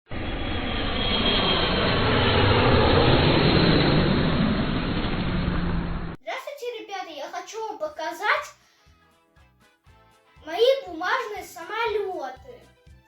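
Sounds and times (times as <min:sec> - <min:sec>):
aircraft engine rumble: 0:00.1 - 0:06.2.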